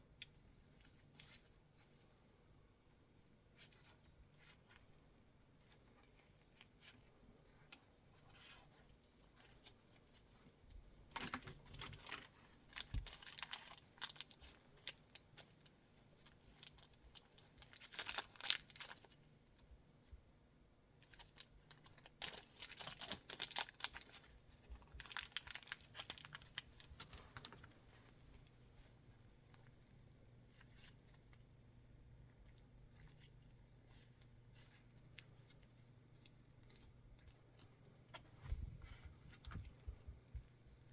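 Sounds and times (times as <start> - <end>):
packaging crinkling and tearing: 11.1 - 15.2, 16.5 - 19.2, 21.0 - 27.8.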